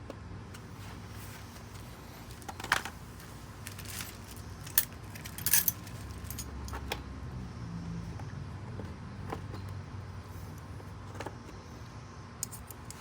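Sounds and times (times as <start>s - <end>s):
metal tools clinking: 2.3s - 6.9s.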